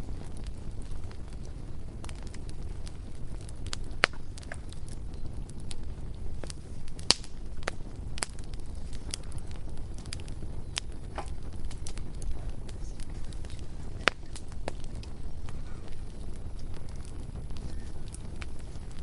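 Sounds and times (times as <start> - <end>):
bonfire crackling and popping: 0.0 - 19.0.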